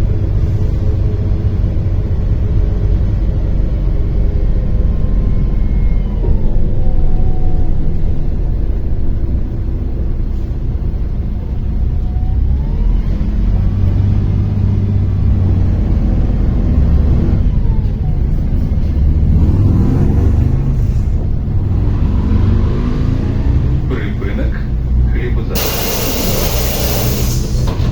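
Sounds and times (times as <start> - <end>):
bus diesel engine rumble: 0.0 - 27.9
drivetrain whine: 25.4 - 27.9.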